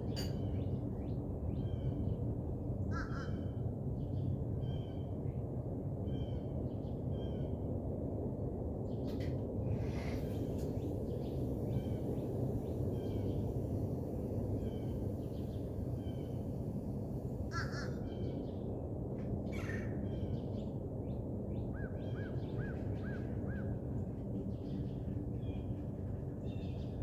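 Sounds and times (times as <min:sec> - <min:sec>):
steady low hum: 0:08.5 - 0:21.4
birds calling: 0:09.1 - 0:18.4.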